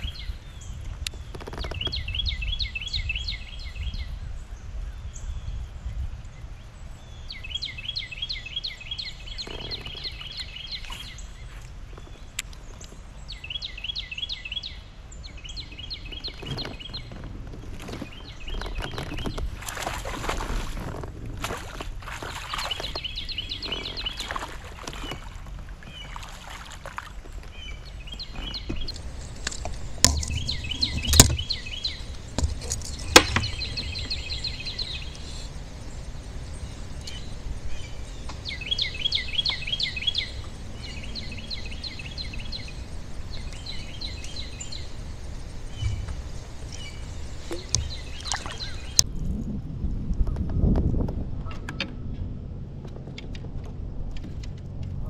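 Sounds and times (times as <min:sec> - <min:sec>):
songbird singing: 0:00.0 - 0:49.5
low rumble of wind and water: 0:00.0 - 0:55.0
sharp knocks: 0:32.4 - 0:33.6.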